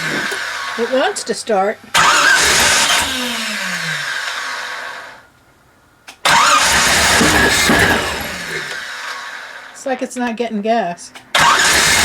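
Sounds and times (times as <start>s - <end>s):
engine cranking: 0.0s - 1.0s, 1.9s - 4.7s, 6.2s - 9.1s, 11.3s - 12.0s.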